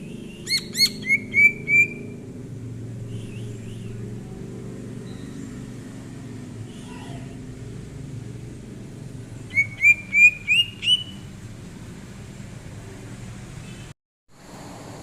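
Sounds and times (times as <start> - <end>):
bird whistling rising notes: 0.4 - 2.2, 9.5 - 11.2.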